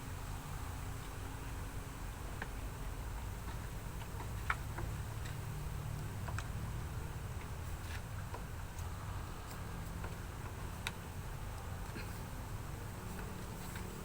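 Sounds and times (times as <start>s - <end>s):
steady low hum: 0.0s - 14.0s
light clicks and taps: 2.4s - 6.6s, 7.3s - 12.1s.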